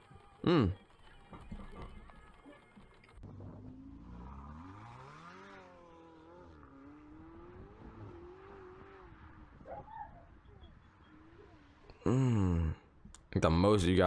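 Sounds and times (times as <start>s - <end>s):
car engine revving: 3.2s - 12.7s.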